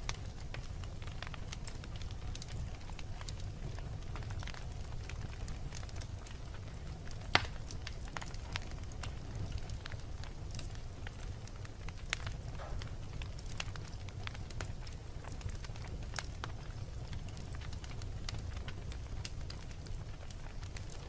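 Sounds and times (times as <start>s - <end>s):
fire crackling and snapping: 0.0s - 21.0s
fire rumbling in a fireplace: 0.0s - 21.0s
loud pop from fire: 7.1s - 8.4s, 12.1s - 14.6s.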